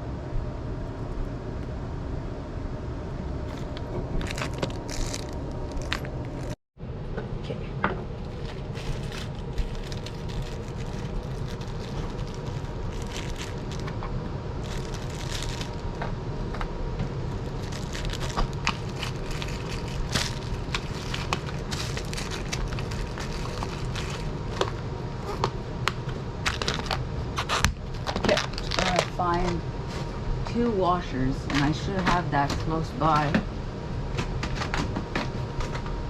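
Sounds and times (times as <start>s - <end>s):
steady low hum: 0.0s - 36.0s
small screws rattling in container: 3.5s - 6.6s.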